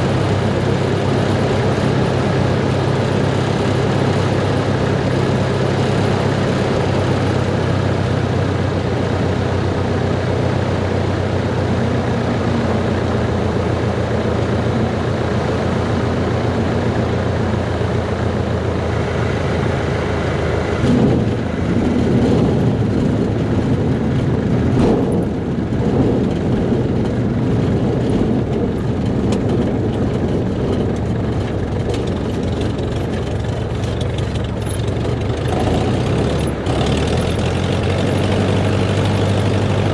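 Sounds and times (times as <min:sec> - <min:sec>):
light aircraft engine and propeller: 0:00.0 - 0:39.9
rushing air noise: 0:18.8 - 0:29.8.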